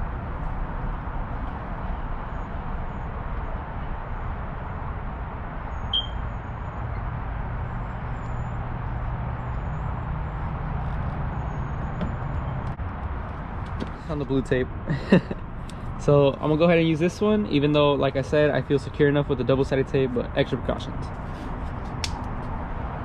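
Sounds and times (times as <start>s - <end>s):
brief high chirp: 5.9s - 6.2s.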